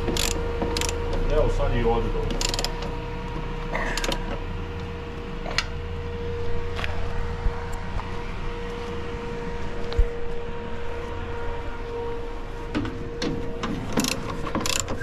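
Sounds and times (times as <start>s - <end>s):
metal clicks and knocks: 0.0s - 1.3s, 12.7s - 15.0s
steady mechanical hum: 0.0s - 15.0s.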